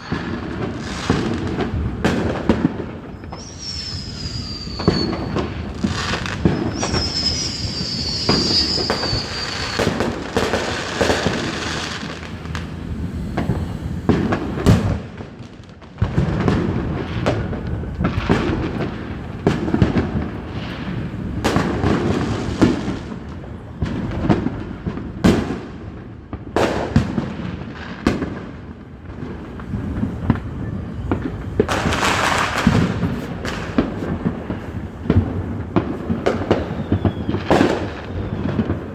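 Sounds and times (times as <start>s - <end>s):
firework whistle: 0.0s - 15.2s, 29.3s - 38.9s
firework crackling: 0.0s - 38.9s
fireworks bangs and booms: 0.0s - 38.9s.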